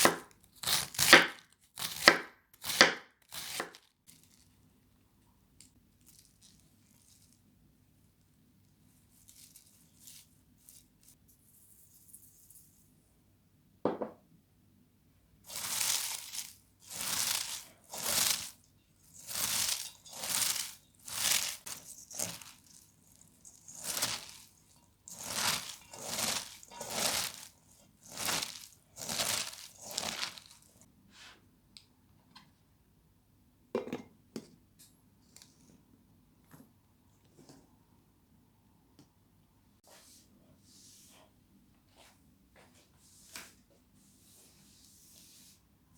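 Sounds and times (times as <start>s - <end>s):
crunchy tearing strokes: 15.5s - 30.8s.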